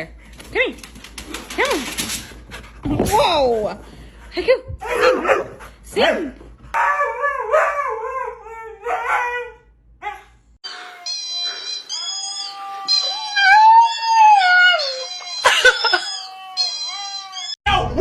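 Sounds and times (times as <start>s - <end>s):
dog howling: 7.0s - 17.6s.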